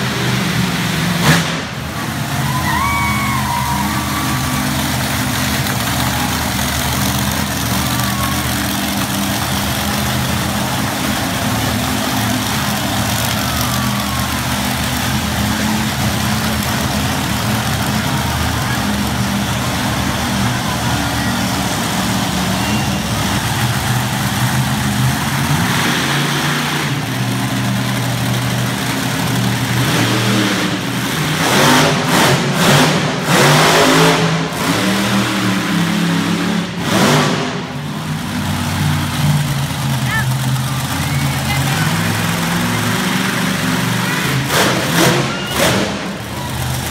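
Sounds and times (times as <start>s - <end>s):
monster truck engine revving: 0.0s - 46.9s.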